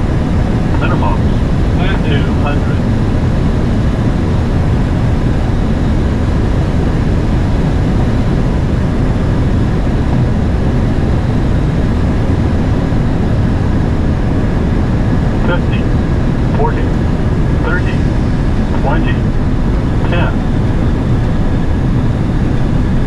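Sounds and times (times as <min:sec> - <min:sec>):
aircraft cockpit rumble: 0:00.0 - 0:23.0.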